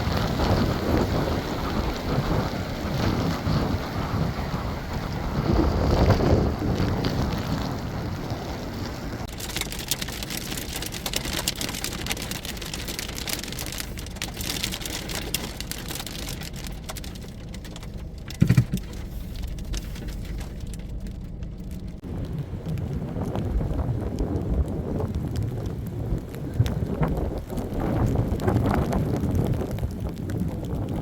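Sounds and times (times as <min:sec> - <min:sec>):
snowstorm wind rushing: 0:00.0 - 0:09.3, 0:22.0 - 0:31.0.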